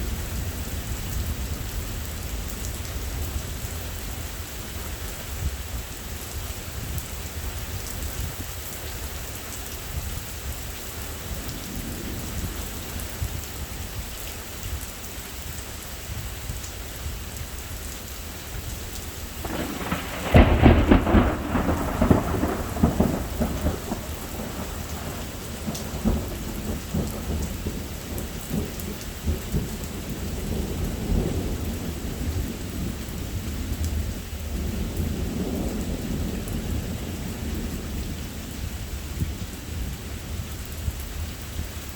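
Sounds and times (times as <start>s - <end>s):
steady rain: 0.0s - 41.9s
thunderclap rolling into rumble: 19.4s - 40.4s.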